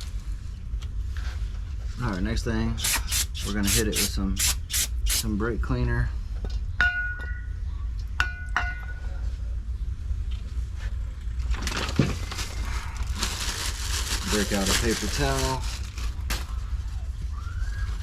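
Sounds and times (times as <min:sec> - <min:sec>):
aerosol can spraying: 0:02.8 - 0:05.3.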